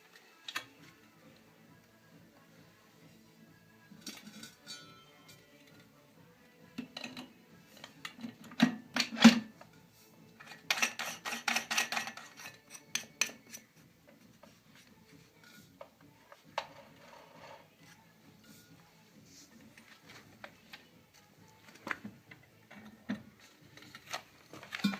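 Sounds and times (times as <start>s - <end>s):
metal parts clinking and scraping: 10.4s - 13.7s.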